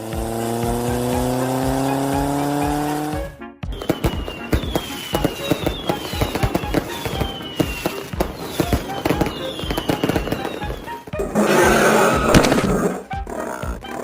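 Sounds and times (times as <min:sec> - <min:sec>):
fireworks pops and bangs: 0:03.7 - 0:11.2, 0:12.3 - 0:12.9
high falling whistle: 0:03.7 - 0:12.8.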